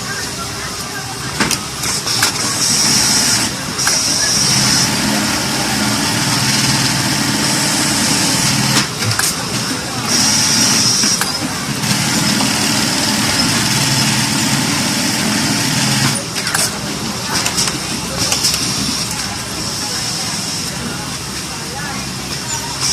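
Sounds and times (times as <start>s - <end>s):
sewing machine motor hum: 1.8s - 19.5s.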